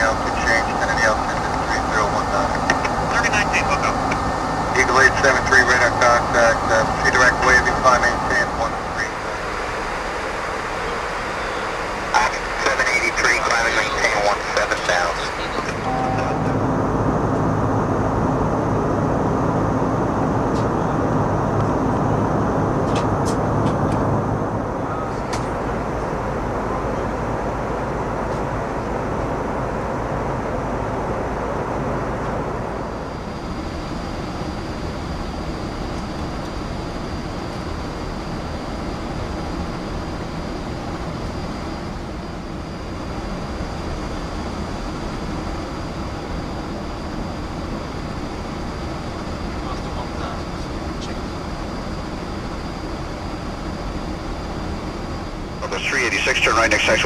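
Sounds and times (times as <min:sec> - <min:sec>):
airflow and engines rushing hum: 0:00.0 - 0:57.0
thin steady high tone: 0:10.8 - 0:16.6.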